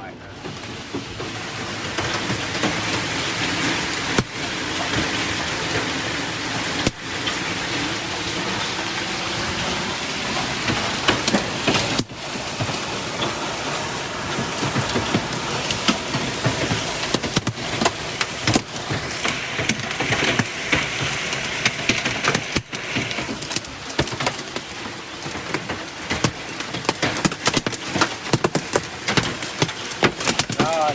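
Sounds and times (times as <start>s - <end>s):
heavy rain hissing: 0.0s - 30.9s
hailstones striking car bodywork: 0.4s - 30.9s.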